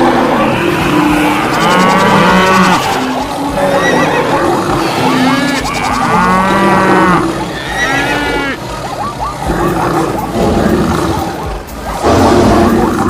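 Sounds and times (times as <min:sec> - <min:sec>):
cattle mooing: 0:00.0 - 0:11.4
other animal calls: 0:00.0 - 0:13.0.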